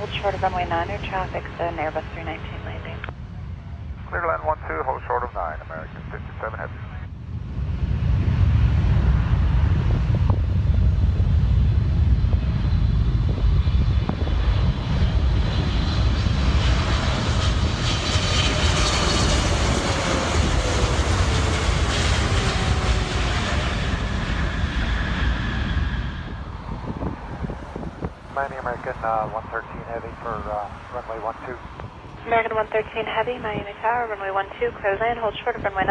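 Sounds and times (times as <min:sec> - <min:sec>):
jet engine whine: 0:00.0 - 0:35.9
jet engines rumbling: 0:00.0 - 0:35.9.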